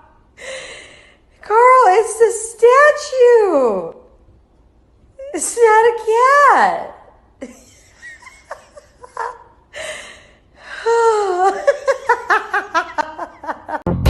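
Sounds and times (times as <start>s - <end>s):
person laughing: 7.4s - 9.6s, 11.0s - 13.9s.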